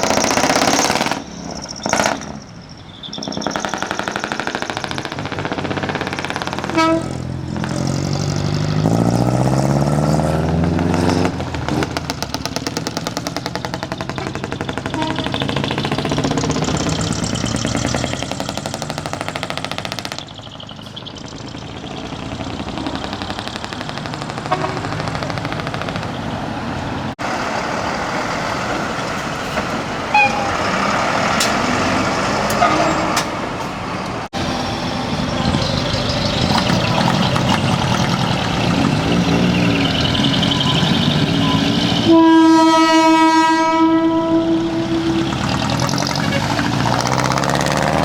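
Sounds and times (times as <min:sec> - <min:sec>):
heavy trucks driving past: 0:00.0 - 0:48.0
truck air horn: 0:06.6 - 0:07.4, 0:14.2 - 0:15.7, 0:24.5 - 0:25.0, 0:30.1 - 0:31.6, 0:32.5 - 0:33.4, 0:40.2 - 0:47.1.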